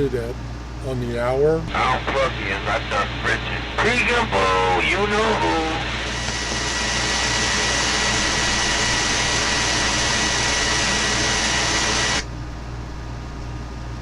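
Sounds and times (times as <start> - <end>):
radio static hiss: 0.9 - 12.3
low hum: 1.6 - 13.5.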